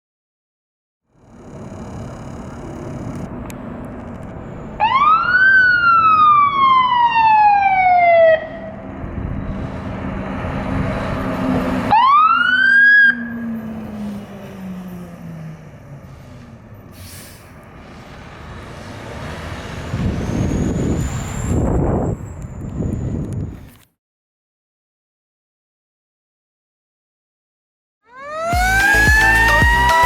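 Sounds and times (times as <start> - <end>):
truck engine: 1.1 - 6.4, 8.4 - 23.8
fire engine siren winding up: 1.2 - 9.6, 11.9 - 17.5, 18.7 - 23.8, 28.0 - 30.0.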